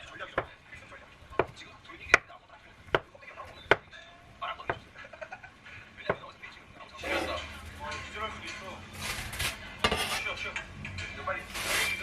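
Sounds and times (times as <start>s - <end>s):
knife chopping on cutting board: 1.4s - 2.3s.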